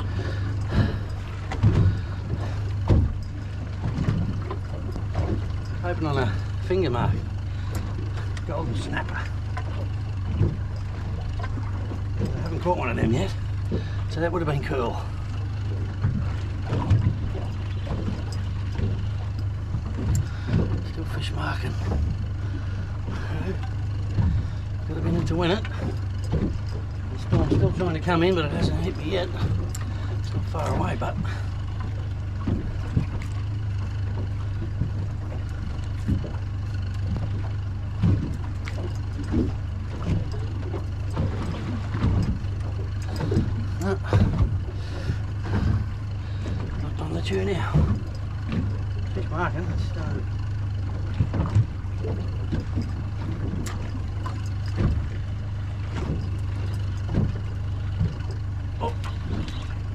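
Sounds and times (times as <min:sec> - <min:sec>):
boat motor idling: 0:00.0 - 0:59.9
water slapping against hull: 0:00.0 - 0:59.9
knocks and thumps: 0:01.5 - 0:03.2, 0:19.7 - 0:20.9, 0:55.9 - 0:58.4.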